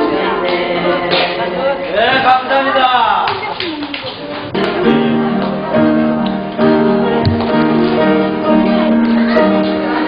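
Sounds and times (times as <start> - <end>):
worship band playing chords: 4.5 - 10.0.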